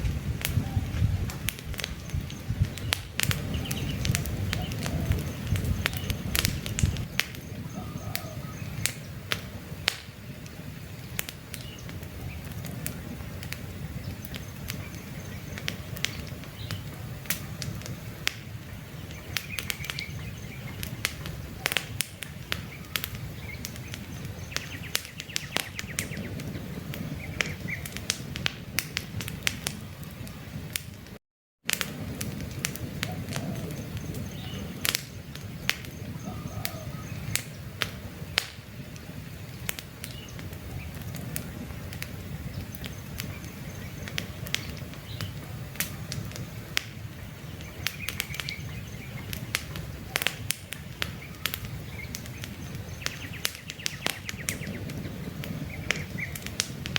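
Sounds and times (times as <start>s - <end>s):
campfire crackling and popping: 0.0s - 56.9s
faint bird chirps: 2.0s - 9.0s, 35.8s - 37.3s.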